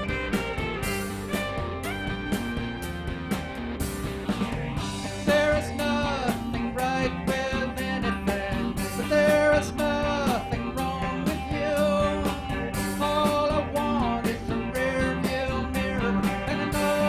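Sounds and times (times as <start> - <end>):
bass guitar: 0.0 - 17.0
electric guitar bending notes: 0.0 - 17.0
steady drum beat: 0.0 - 17.0.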